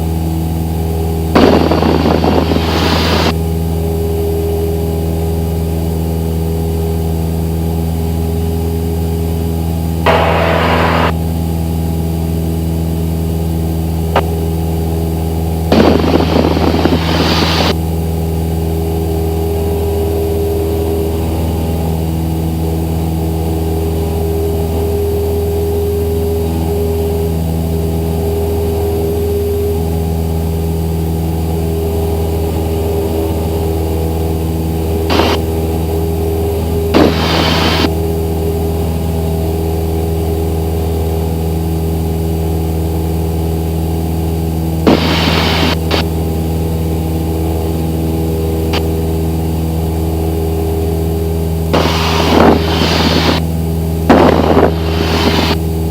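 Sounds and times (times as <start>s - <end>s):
propeller plane engine droning: 0.0s - 55.9s
loud bursts of hiss: 15.7s - 17.7s, 37.0s - 37.9s, 44.9s - 46.0s, 51.8s - 53.4s, 54.1s - 55.6s.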